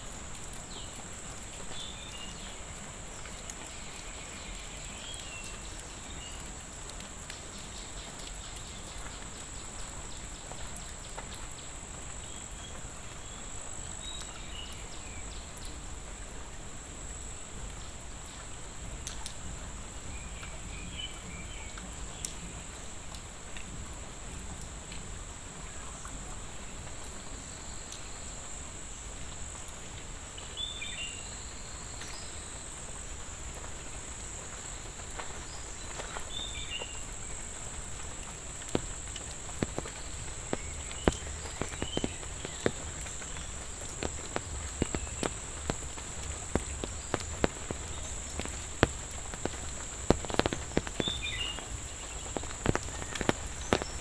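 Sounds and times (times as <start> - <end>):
raindrops pattering: 0.0 - 54.0
high-pitched insect chorus: 30.4 - 54.0.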